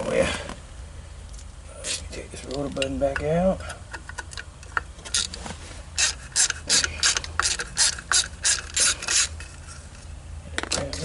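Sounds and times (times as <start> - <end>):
hand ratchet clicking: 6.0 - 9.6.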